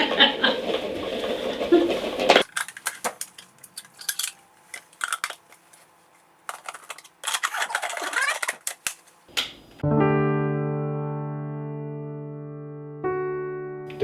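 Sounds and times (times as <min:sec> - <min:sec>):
hard plastic parts clicking: 0:02.4 - 0:09.5.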